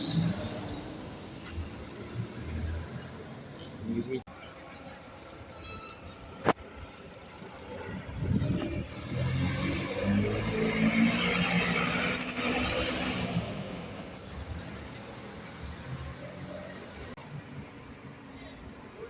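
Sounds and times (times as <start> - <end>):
diesel bus passing: 0.0 - 18.0.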